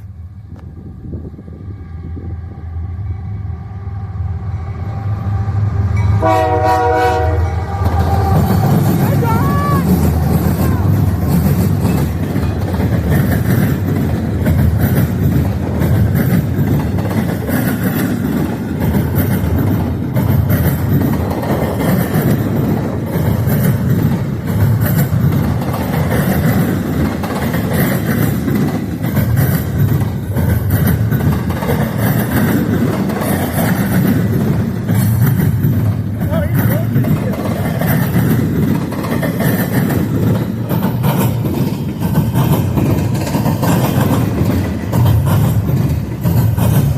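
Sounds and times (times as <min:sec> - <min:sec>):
wind buffeting microphone: 0:00.0 - 0:06.2
freight train rolling past: 0:00.0 - 0:46.9.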